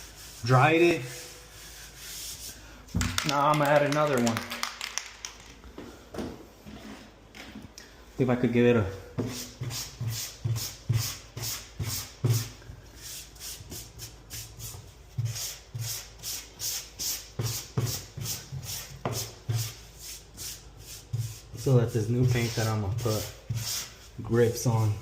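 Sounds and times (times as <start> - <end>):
sandpaper rubbing on paint: 0.0 - 2.6, 9.3 - 25.0.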